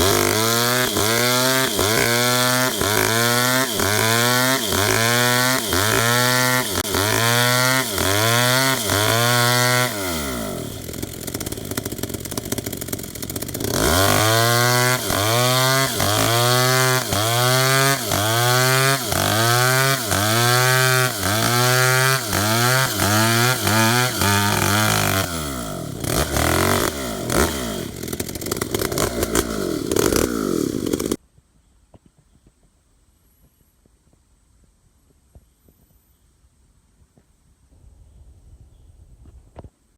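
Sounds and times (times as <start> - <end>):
chainsaw cutting wood: 0.0 - 31.2.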